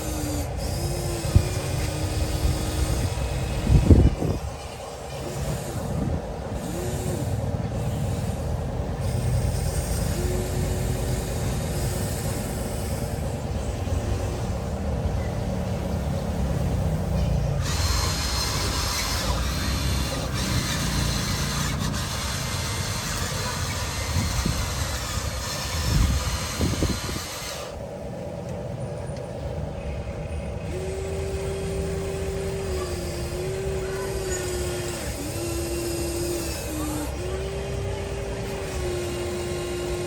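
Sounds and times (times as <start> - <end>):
small electric motors running: 0.0 - 28.4, 30.5 - 40.0
steady motor whine: 0.0 - 40.0
scraping hiss: 15.6 - 27.8.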